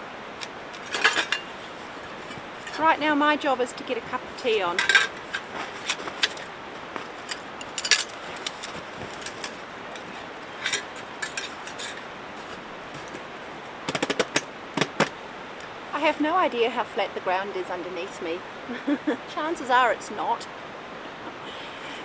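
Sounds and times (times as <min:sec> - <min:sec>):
metal cookware clinking: 0:00.8 - 0:01.6, 0:04.4 - 0:05.5, 0:09.2 - 0:12.1.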